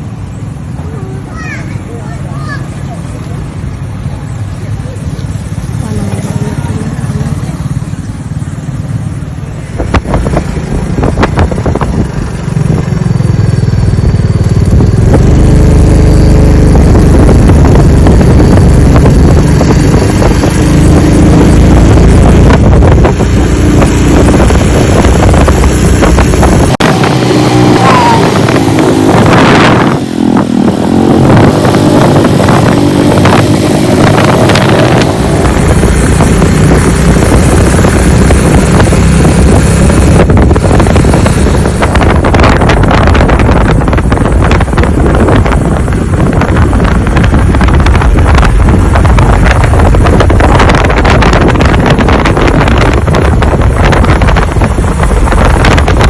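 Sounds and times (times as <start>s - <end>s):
vehicle engine running: 0.0s - 56.0s
wind rumble on microphone: 2.9s - 56.0s.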